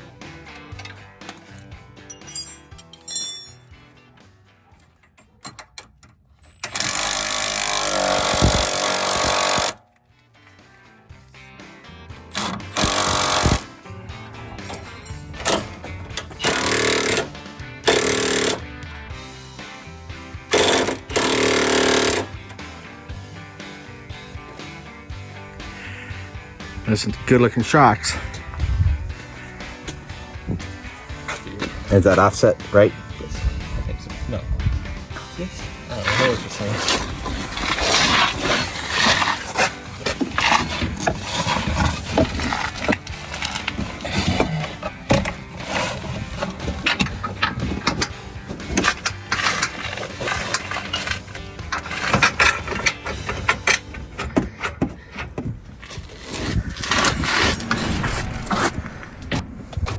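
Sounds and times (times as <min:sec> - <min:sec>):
background music: 0:00.0 - 0:55.2
impact wrench running: 0:06.6 - 0:09.8, 0:12.4 - 0:13.7, 0:16.3 - 0:18.6, 0:20.5 - 0:22.3, 0:48.8 - 0:53.6
tools knocking and clanking: 0:14.6 - 0:17.3, 0:36.0 - 0:55.6.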